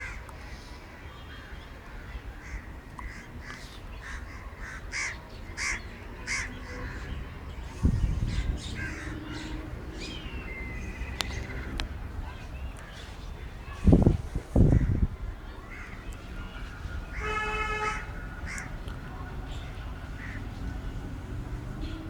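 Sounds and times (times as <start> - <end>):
crows cawing: 2.4 - 7.1, 8.6 - 9.5, 17.1 - 18.7, 20.2 - 20.4.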